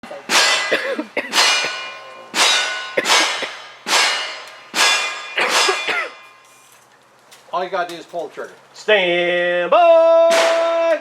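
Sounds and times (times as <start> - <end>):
steel targets clanging: 0.0 - 6.8.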